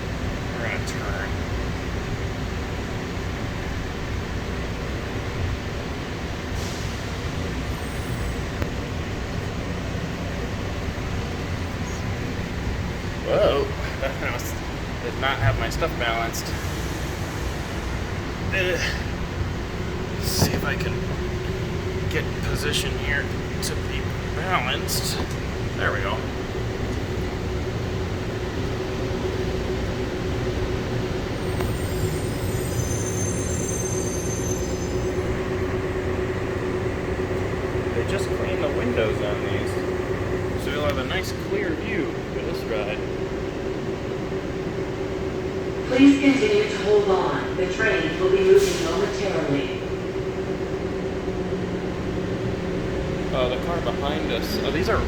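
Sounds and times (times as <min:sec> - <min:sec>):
people-mover car rumbling: 0:00.0 - 0:33.7, 0:34.6 - 0:55.0
faint high whine: 0:07.6 - 0:43.8
high-pitched squeal: 0:31.3 - 0:35.5.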